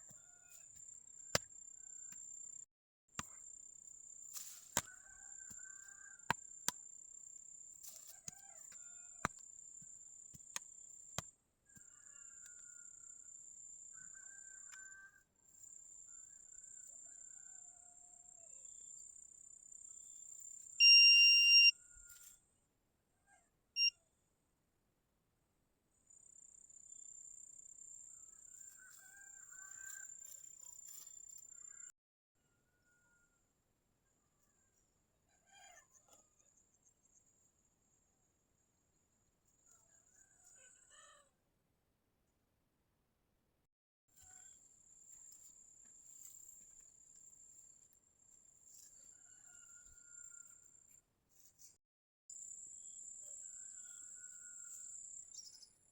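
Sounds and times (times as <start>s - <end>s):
metal detector beep: 20.8s - 21.8s, 23.8s - 24.0s.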